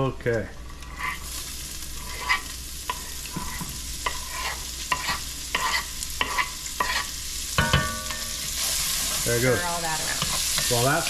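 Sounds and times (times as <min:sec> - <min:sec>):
onion and garlic sizzling: 0:00.0 - 0:11.0
wooden spoon scraping and tapping: 0:02.0 - 0:09.2.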